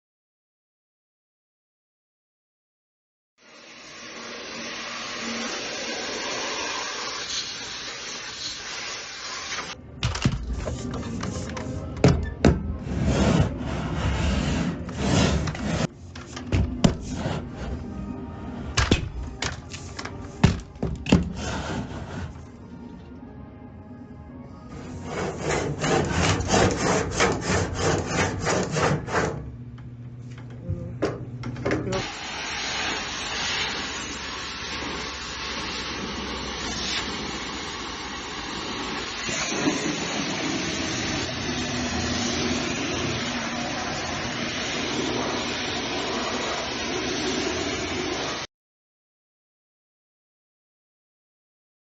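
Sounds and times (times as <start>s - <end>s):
pressure washer spraying: 3.5s - 9.8s, 32.0s - 48.5s
background music: 9.8s - 28.2s
scraping and rasping strokes: 12.8s - 18.8s, 21.2s - 22.7s, 24.7s - 29.4s.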